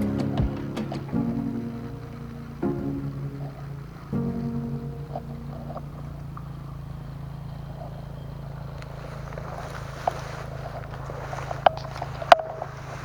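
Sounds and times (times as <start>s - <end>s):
small engine humming: 3.5s - 13.0s.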